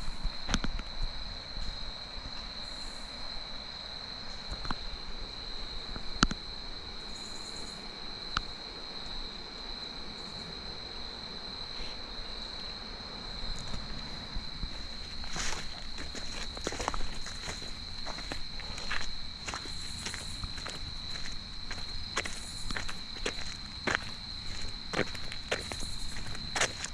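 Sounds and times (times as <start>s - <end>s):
insects droning: 0.0s - 26.9s.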